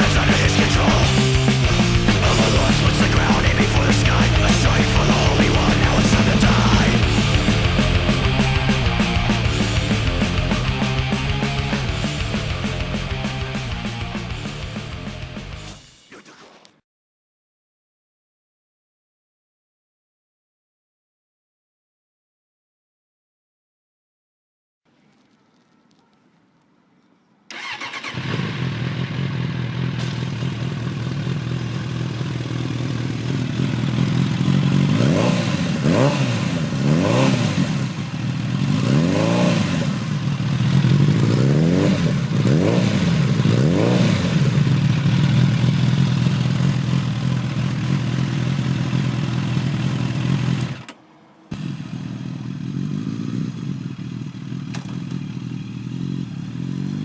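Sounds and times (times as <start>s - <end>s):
motorcycle engine idling: 0.0s - 15.8s, 27.5s - 36.9s, 37.7s - 50.9s, 51.5s - 57.0s
motorcycle engine revving: 0.0s - 15.8s, 27.5s - 57.0s.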